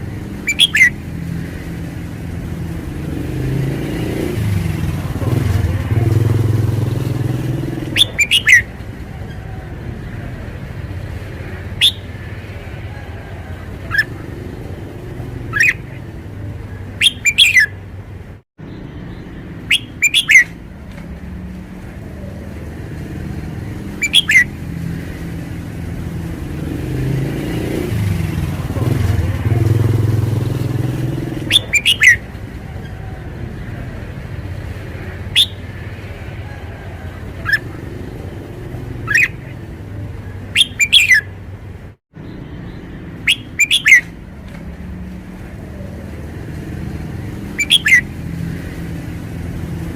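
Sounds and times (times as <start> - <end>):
passing vehicle rumble: 0.0 - 49.9
bird singing whistled phrases: 0.4 - 1.0, 7.9 - 8.7, 11.8 - 12.1, 15.5 - 15.9, 17.0 - 17.8, 19.6 - 20.6, 24.0 - 24.5, 31.5 - 32.2, 35.3 - 35.6, 39.0 - 39.4, 40.6 - 41.3, 43.2 - 44.2, 47.5 - 48.1.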